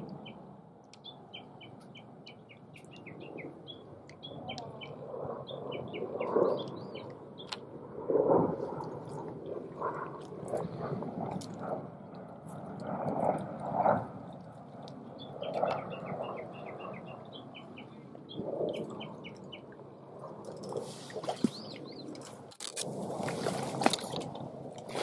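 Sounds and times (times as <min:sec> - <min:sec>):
songbird chirping: 0:00.1 - 0:07.6, 0:15.2 - 0:19.7
splashing in shallow water: 0:20.3 - 0:25.0.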